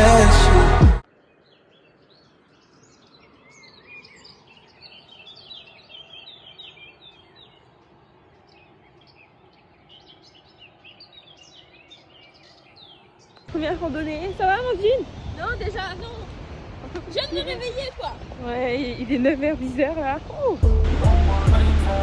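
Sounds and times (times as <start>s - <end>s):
small birds chirping: 1.1s - 16.3s.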